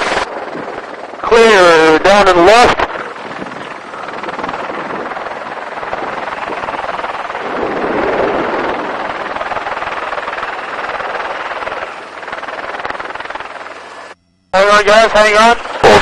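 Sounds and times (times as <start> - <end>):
helicopter rotor and engine: 0.0 - 16.0.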